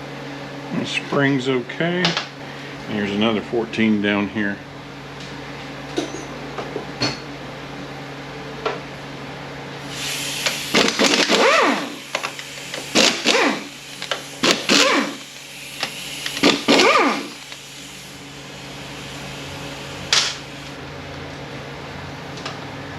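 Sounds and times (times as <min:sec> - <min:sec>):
steady low hum: 0:00.0 - 0:22.9
power ratchet bursts: 0:09.8 - 0:20.8.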